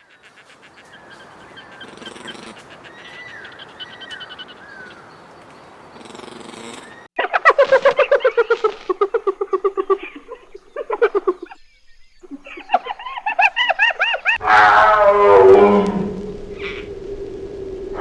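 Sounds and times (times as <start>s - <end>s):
short repeated animal calls: 0.0s - 5.1s
chattering arched calls: 0.0s - 14.4s
harsh falling animal call: 0.2s - 5.1s, 12.3s - 18.0s.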